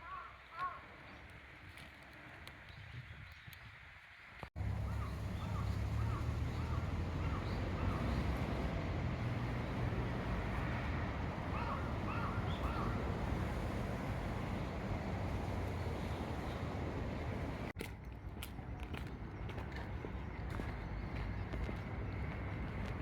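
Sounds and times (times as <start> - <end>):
crow cawing: 0.0 - 0.8, 11.5 - 13.0.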